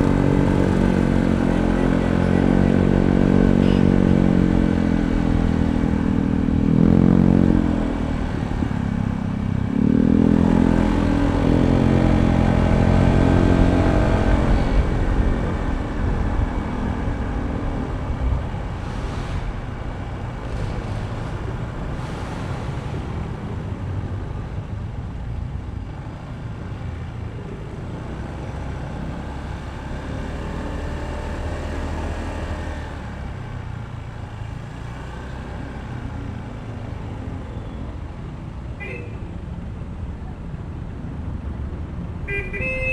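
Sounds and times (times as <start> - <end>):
scooter engine pulling away: 0.0 - 5.0
road and wind noise: 0.0 - 42.9.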